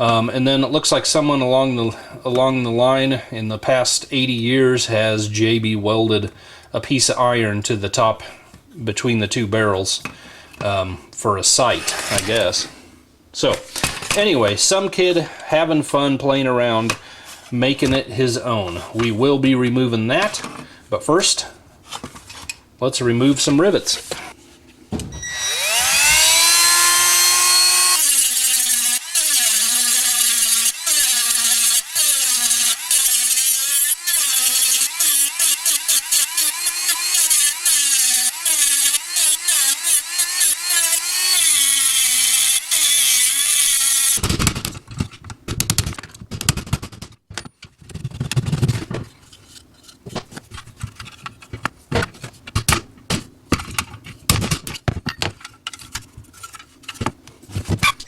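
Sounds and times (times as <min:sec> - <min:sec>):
electric drill drilling metal: 0:25.2 - 0:44.2.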